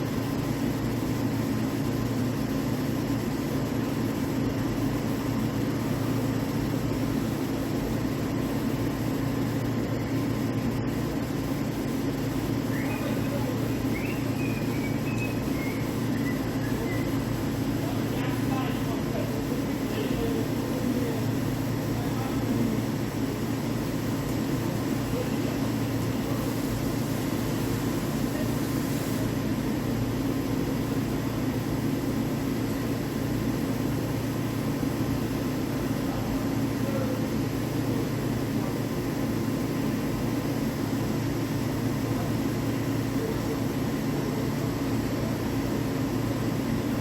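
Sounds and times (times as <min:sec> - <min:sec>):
faint whine tones: 0:04.1 - 0:29.4.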